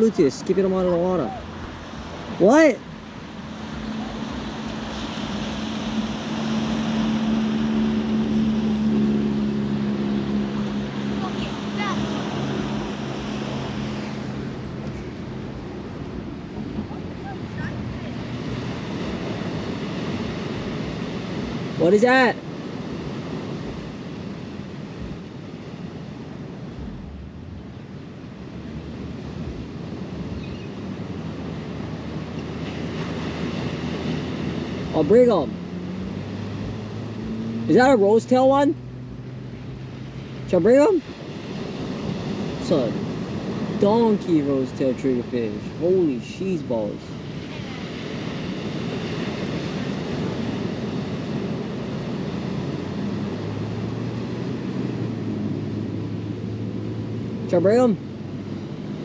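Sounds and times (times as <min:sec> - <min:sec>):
steady engine drone: 0:00.0 - 0:59.0
surf: 0:00.0 - 0:59.0
wind buffeting microphone: 0:22.5 - 0:37.8.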